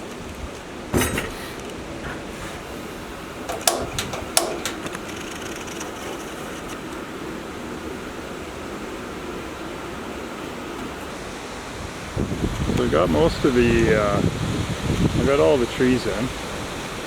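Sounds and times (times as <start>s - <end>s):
steady rushing noise: 0.0s - 17.0s
sharp knocks: 3.5s - 5.0s.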